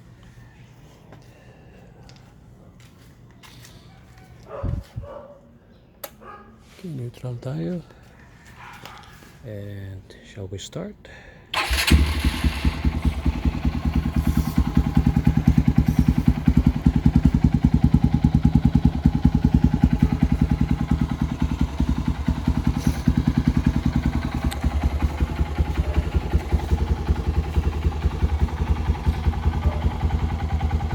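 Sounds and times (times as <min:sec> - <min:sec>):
motorcycle engine idling: 0:11.5 - 0:30.9.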